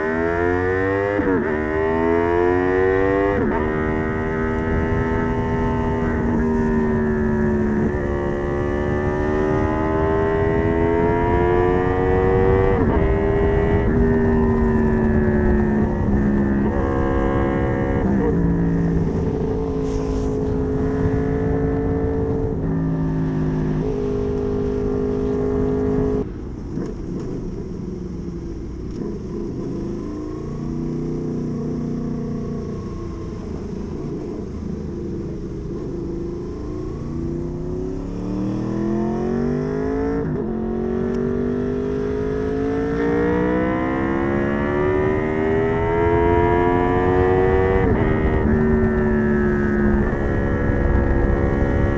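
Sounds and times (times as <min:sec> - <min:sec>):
motorcycle engine running: 0:12.4 - 0:38.7.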